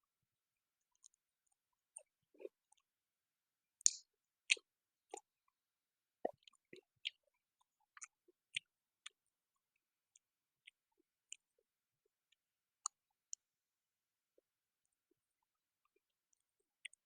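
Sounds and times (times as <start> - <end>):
mouth clicks of chewing: 3.8 - 5.3, 6.2 - 7.2, 16.3 - 17.0.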